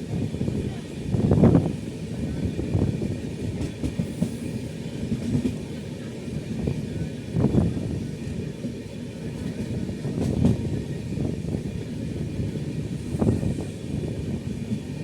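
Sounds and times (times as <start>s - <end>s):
train rumbling on rails: 0.0s - 15.0s
heavy train knocks: 2.7s - 5.7s, 9.4s - 10.9s.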